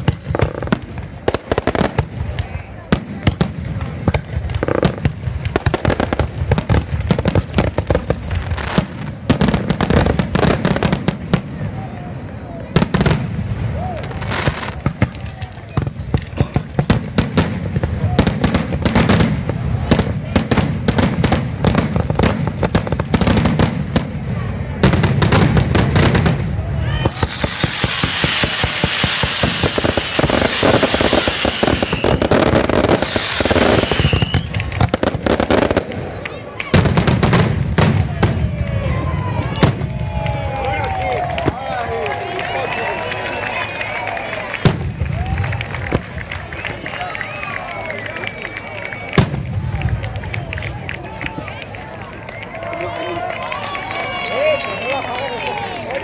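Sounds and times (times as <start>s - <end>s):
deep fireworks booms: 0.0s - 42.1s, 43.9s - 46.8s, 49.1s - 50.8s
fireworks bangs and crackling: 0.0s - 56.0s
fireworks whistles: 24.9s - 35.8s, 42.3s - 49.5s.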